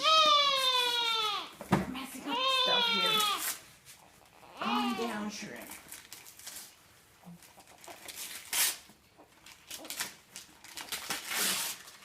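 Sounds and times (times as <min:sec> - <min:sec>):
wrapping paper rustling and tearing: 0:02.8 - 0:04.0, 0:04.8 - 0:12.0.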